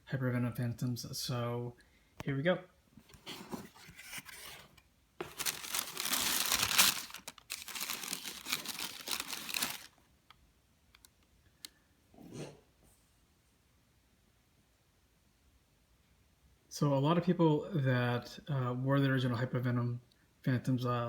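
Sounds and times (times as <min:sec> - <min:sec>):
cardboard packaging rustling: 0:03.0 - 0:10.1.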